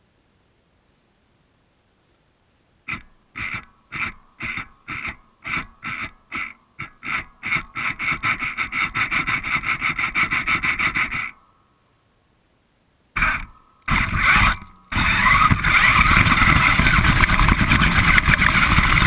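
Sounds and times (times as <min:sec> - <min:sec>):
rhythmic rubbing strokes: 0:02.9 - 0:11.4, 0:13.2 - 0:19.0.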